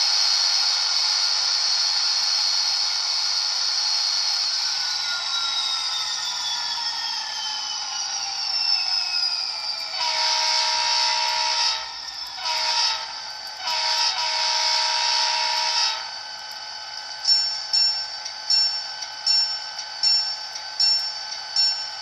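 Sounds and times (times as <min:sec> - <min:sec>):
falling whine: 0:00.0 - 0:14.1
locomotive horn: 0:09.9 - 0:16.1
locomotive bell ringing: 0:17.2 - 0:22.0.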